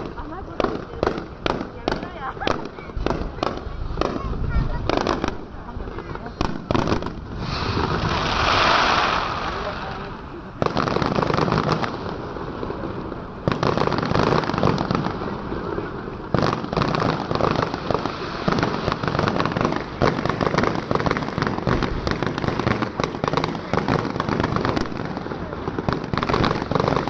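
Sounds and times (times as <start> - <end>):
fireworks crackling: 0.0 - 27.0
firework shells bursting: 6.4 - 12.2.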